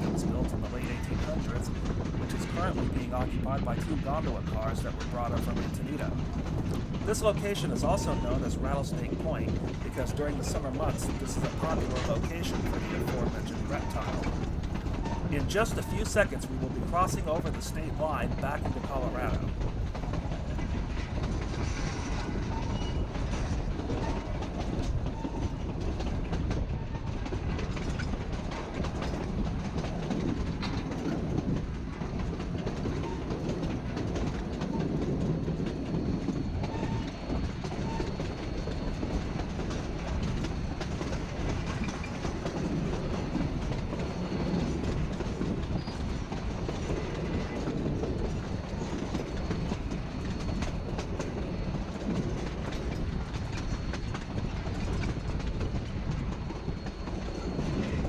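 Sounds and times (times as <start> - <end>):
train rumbling on track: 0.0 - 58.0
wheels clicking over rail joints: 0.0 - 58.0.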